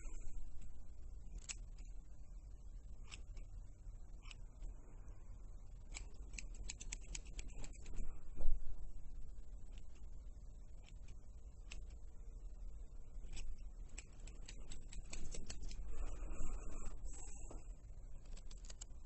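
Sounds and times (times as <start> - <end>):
sharp clicks: 5.8 - 8.1, 10.8 - 12.0, 13.2 - 17.6, 18.2 - 19.0.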